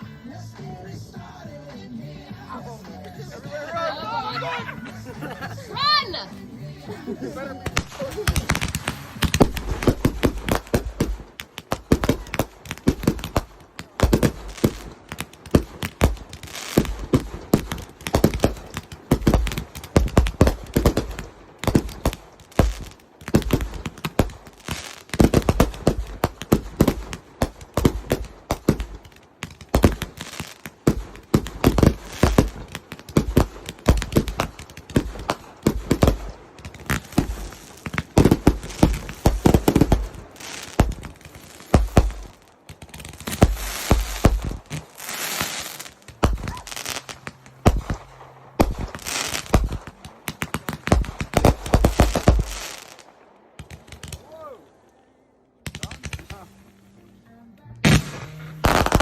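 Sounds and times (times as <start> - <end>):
fireworks bangs and crackles: 7.5 - 54.6, 55.6 - 56.6, 57.8 - 59.0
deep firework thuds: 7.6 - 54.3.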